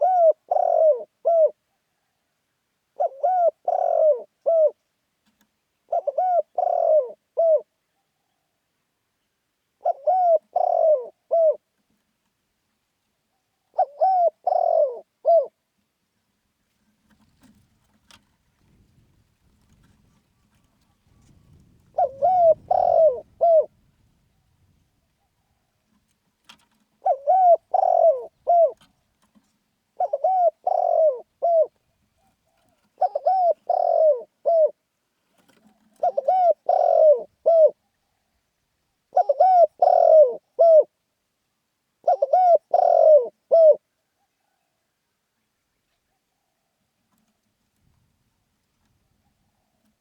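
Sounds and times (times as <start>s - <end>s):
dove cooing: 0.0s - 2.2s, 2.9s - 4.8s, 5.9s - 8.5s, 9.8s - 11.7s, 13.3s - 15.6s, 17.1s - 38.4s, 39.1s - 41.0s, 42.0s - 44.8s.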